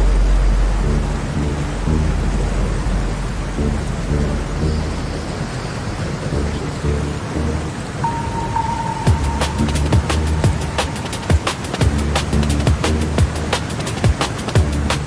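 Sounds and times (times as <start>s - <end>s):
low pulsing synth notes: 0.0s - 13.5s
rain: 0.0s - 15.0s
steady high tone: 0.8s - 12.2s.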